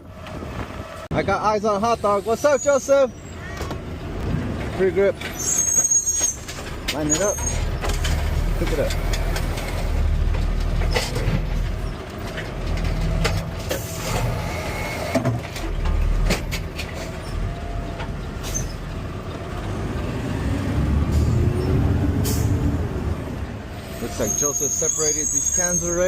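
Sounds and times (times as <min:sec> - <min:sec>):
garbage truck engine running: 0:03.1 - 0:24.4
trash cart knocks and clatters: 0:06.3 - 0:14.4, 0:15.2 - 0:18.8.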